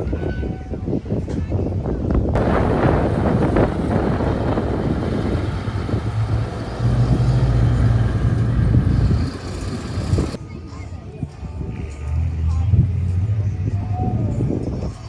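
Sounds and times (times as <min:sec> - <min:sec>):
engine hum: 0:02.4 - 0:10.4
vehicle engine rumbling: 0:02.4 - 0:10.4.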